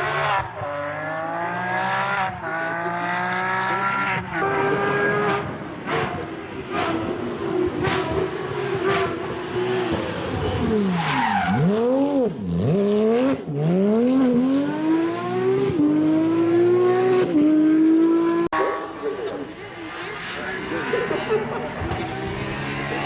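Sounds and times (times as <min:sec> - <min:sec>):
race car engine at full throttle: 0:00.0 - 0:23.0.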